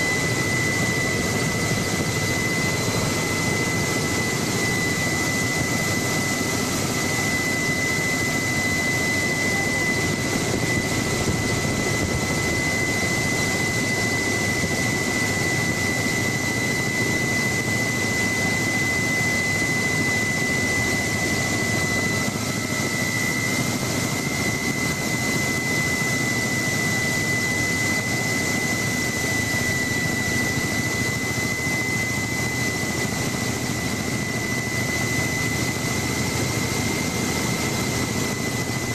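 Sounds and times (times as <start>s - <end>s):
helicopter engine and rotors: 0.0s - 38.9s
high turbine whine: 0.0s - 38.9s.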